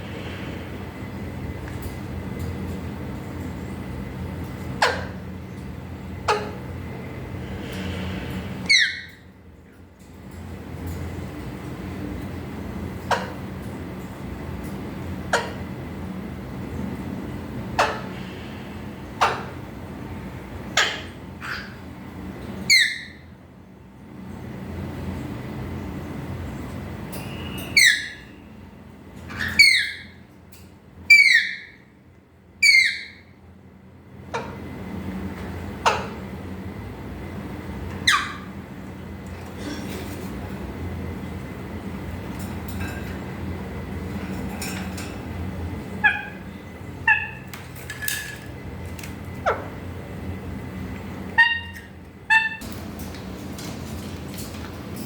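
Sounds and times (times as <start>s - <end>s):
parrot whistled calls: 8.7s - 9.2s, 22.7s - 23.2s, 27.4s - 28.4s, 29.3s - 30.2s, 31.1s - 31.8s, 32.6s - 33.3s, 38.0s - 38.5s, 46.0s - 47.5s, 51.4s - 52.6s
parrot chirps: 8.7s - 9.3s, 22.7s - 23.2s, 27.4s - 28.4s, 29.3s - 30.2s, 31.1s - 31.8s, 32.6s - 33.3s, 38.0s - 38.5s, 46.0s - 47.5s, 51.3s - 52.6s
parrot giving sharp calls: 46.0s - 47.5s, 51.4s - 52.6s.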